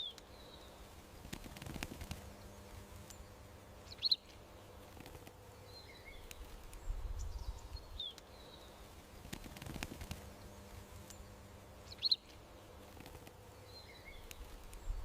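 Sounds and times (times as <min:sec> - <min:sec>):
birds chirping: 0:00.0 - 0:15.0
faint clicks: 0:01.2 - 0:03.2, 0:04.2 - 0:05.4, 0:06.2 - 0:06.9, 0:09.2 - 0:11.3, 0:12.3 - 0:13.4, 0:14.2 - 0:15.0.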